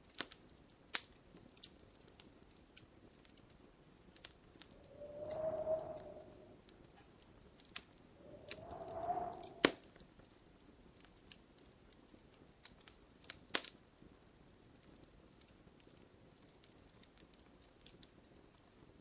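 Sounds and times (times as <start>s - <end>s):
wood fire crackling: 0.0s - 6.6s, 7.6s - 9.9s, 11.0s - 18.9s
short whistling hiss: 4.8s - 6.6s, 8.2s - 9.8s.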